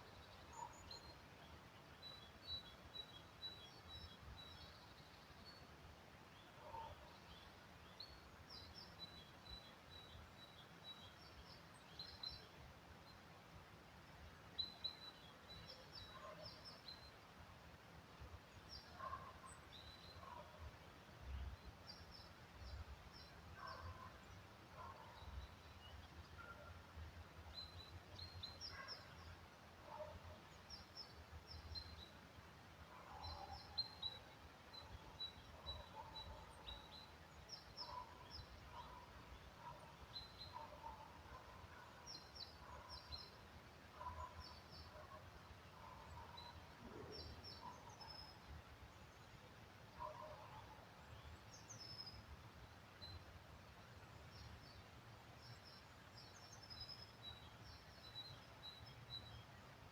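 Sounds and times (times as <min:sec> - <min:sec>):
small birds chirping: 0:00.0 - 0:05.7, 0:18.4 - 0:59.9.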